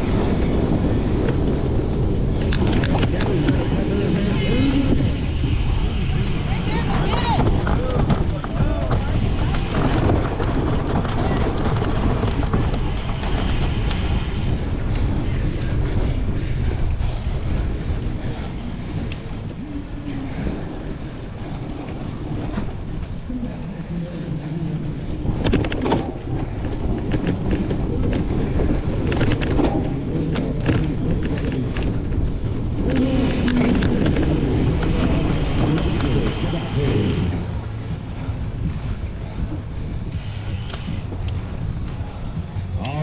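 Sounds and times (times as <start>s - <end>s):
wind buffeting microphone: 0.0s - 43.0s
bike clattering over rough ground: 5.3s - 14.6s.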